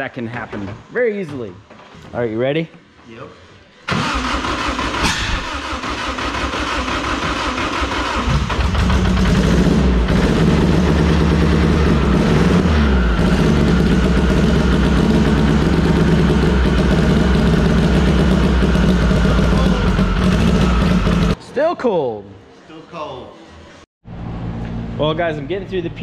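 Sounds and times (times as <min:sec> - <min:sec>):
engine cranking on starter: 0:03.9 - 0:09.8
rough engine idle: 0:13.2 - 0:21.4.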